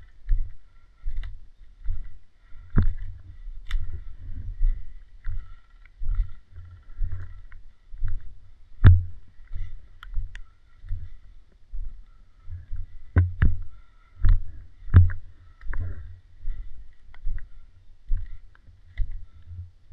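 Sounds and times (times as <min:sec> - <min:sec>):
dull rhythmic thumps: 0:01.8 - 0:16.7.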